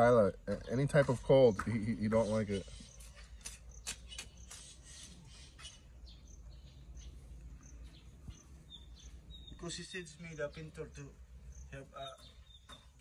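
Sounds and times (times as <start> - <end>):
high bird chirps: 0.5 - 13.0
sharp clicks: 3.4 - 4.8.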